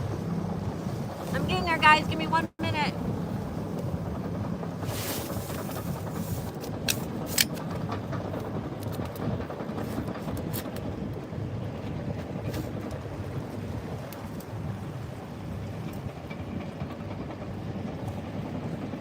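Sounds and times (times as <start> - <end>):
ocean surf: 0.0 - 19.0
wind buffeting microphone: 0.0 - 19.0.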